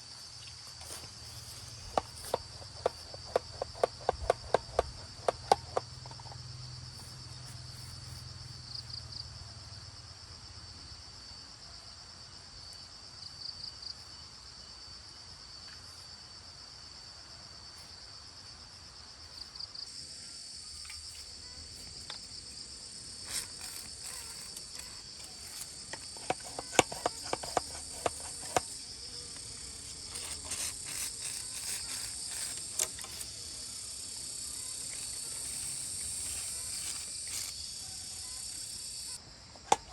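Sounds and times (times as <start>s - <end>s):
insects chirring: 0.0s - 11.1s, 12.6s - 39.9s.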